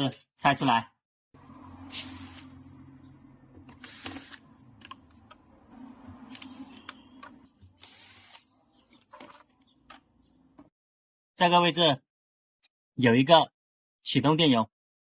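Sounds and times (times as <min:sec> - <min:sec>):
cordless screwdriver running: 0:01.9 - 0:02.5, 0:03.7 - 0:04.5, 0:07.8 - 0:08.5.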